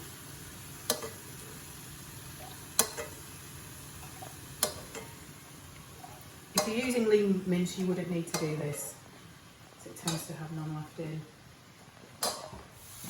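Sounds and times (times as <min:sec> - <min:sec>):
meat sizzling in a frying pan: 0:00.0 - 0:08.6, 0:12.8 - 0:13.0.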